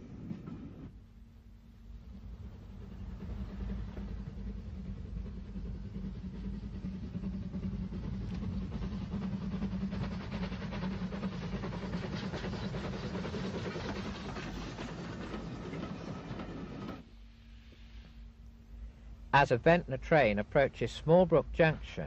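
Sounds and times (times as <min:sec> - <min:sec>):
rapid train clatter: 0:00.0 - 0:17.3
train low rumble: 0:00.0 - 0:22.0.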